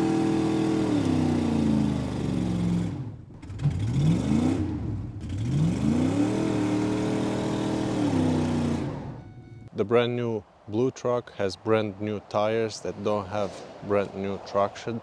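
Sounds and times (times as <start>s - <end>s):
pickup engine revving: 0.0s - 9.7s.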